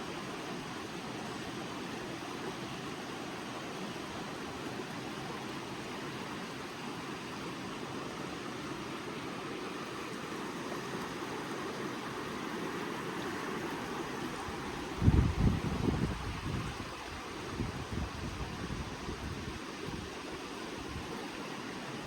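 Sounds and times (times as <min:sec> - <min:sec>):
creek water rushing: 0:00.0 - 0:22.0
wind buffeting microphone: 0:14.8 - 0:20.2.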